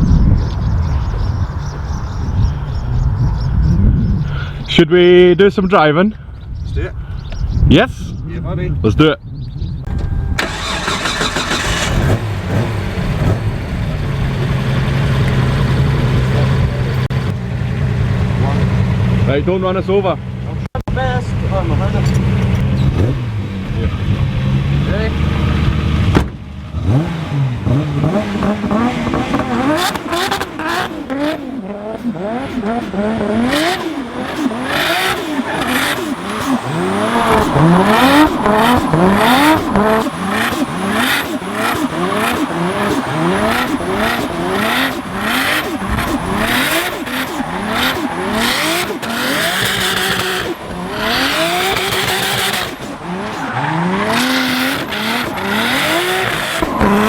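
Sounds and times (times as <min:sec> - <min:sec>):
car engine revving: 0:09.9 - 0:19.4, 0:21.2 - 0:57.0.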